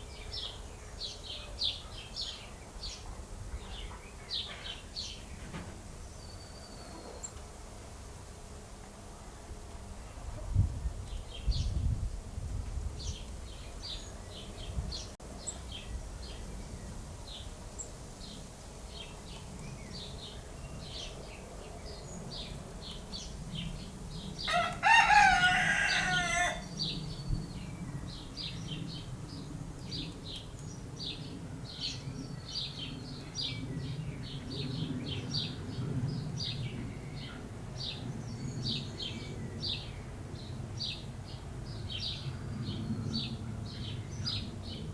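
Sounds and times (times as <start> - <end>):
rooster crowing: 24.4 - 26.7.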